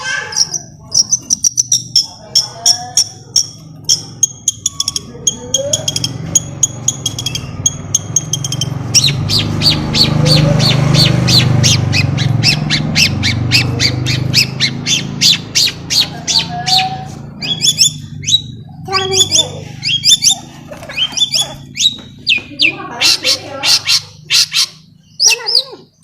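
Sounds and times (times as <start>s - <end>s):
bird chirping and chattering: 0.0s - 26.0s.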